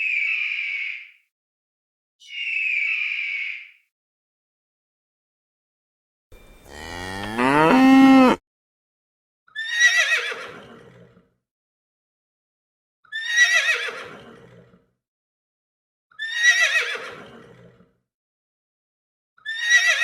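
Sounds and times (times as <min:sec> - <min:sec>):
cow mooing: 0:06.4 - 0:08.4
horse whinnying: 0:06.6 - 0:08.4.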